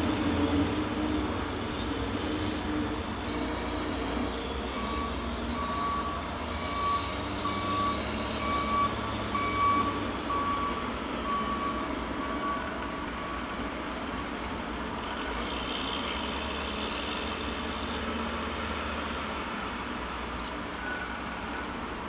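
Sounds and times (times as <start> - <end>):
reversing alarm beeping: 3.3 - 13.5, 20.8 - 21.8.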